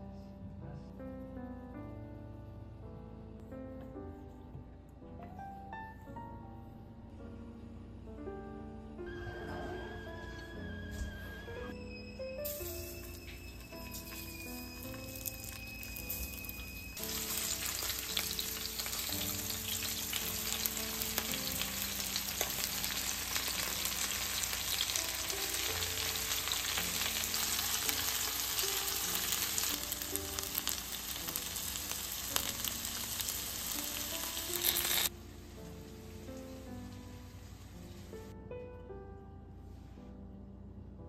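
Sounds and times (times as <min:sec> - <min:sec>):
chicken sizzling in oil: 0:12.4 - 0:35.1.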